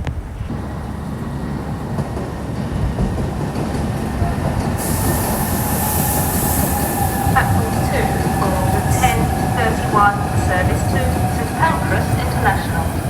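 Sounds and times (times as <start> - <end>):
train rumbling: 0.0 - 13.0
sharp hiss: 4.8 - 7.5.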